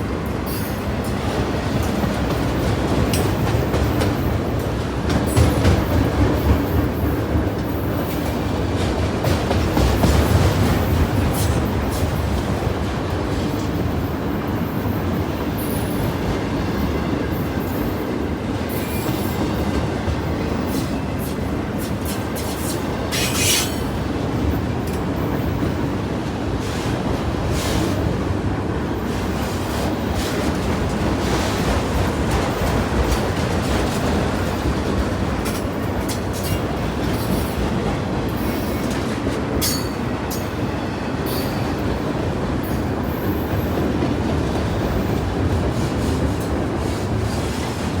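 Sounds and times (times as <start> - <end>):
train wheels clattering on rails: 0.0 - 48.0
high wheel squeaks: 22.1 - 24.0.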